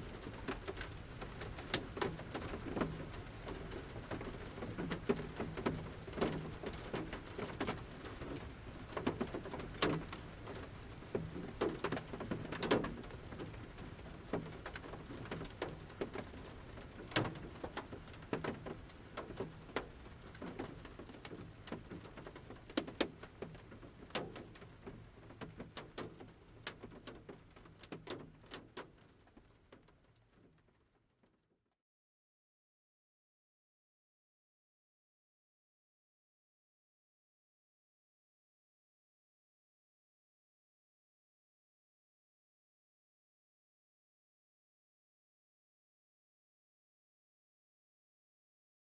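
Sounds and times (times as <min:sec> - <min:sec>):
rain drops tapping on van roof: 0:00.0 - 0:31.3
light rain patter: 0:00.0 - 0:31.4.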